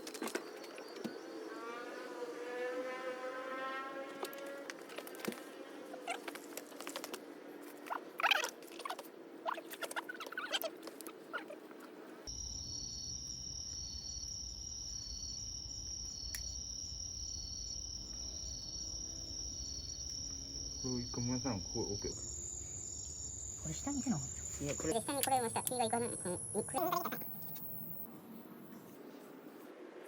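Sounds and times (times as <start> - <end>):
high-pitched insect chorus: 12.3 - 28.1.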